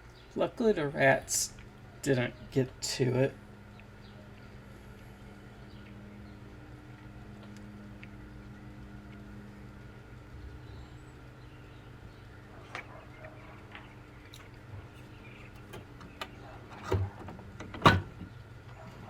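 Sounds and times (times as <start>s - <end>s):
faint steady hum: 0.0s - 19.0s
pinball machine parts clicking: 12.6s - 18.4s.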